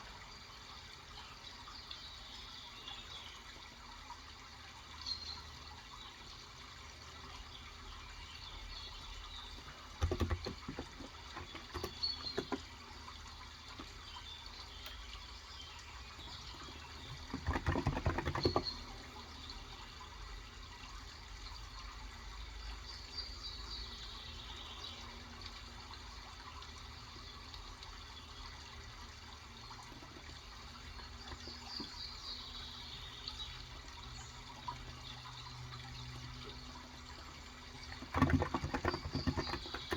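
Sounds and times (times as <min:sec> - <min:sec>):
running water: 0:00.0 - 0:39.9
keyboard typing: 0:10.0 - 0:12.6.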